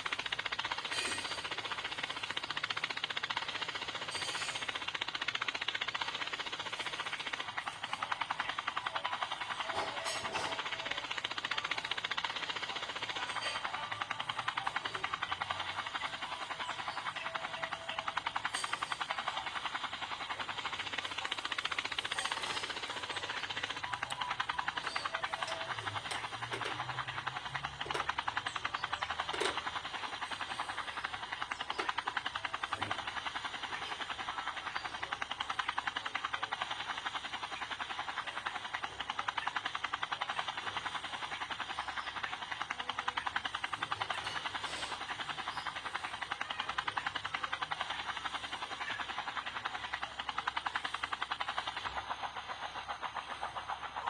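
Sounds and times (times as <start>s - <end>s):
helicopter rotor pulsing: 0.0s - 54.0s.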